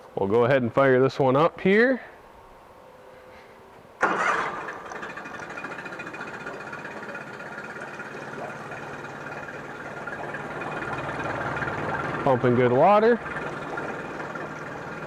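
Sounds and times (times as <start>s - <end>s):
outboard motor idling: 4.0s - 15.0s.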